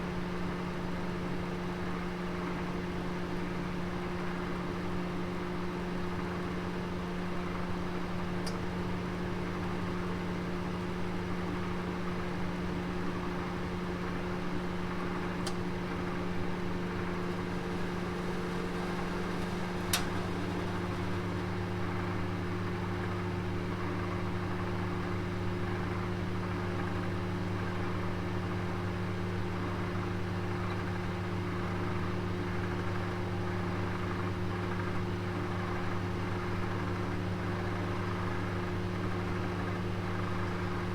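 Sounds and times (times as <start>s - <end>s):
oven humming: 4.6s - 33.1s.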